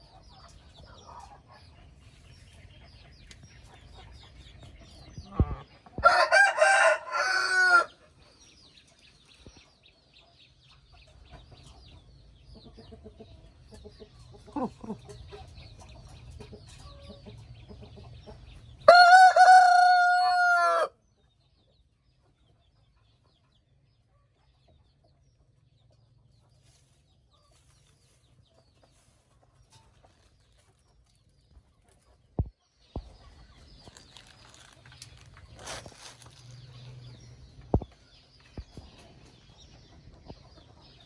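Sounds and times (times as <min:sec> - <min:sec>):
rooster crowing: 0:06.0 - 0:07.9, 0:18.9 - 0:20.9
hens clucking: 0:11.0 - 0:18.7.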